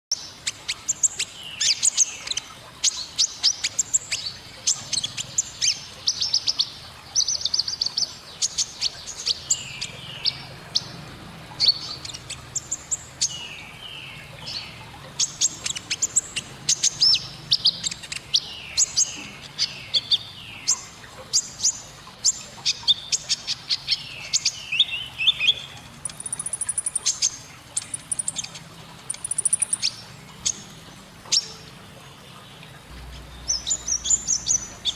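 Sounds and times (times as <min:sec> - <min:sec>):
canary singing scratchy trills: 0:25.0 - 0:30.7.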